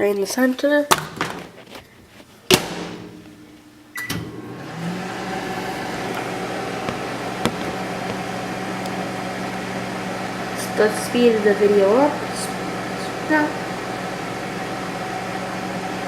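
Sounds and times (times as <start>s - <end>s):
microwave door banging shut: 2.5s - 3.2s
microwave humming: 2.5s - 16.0s.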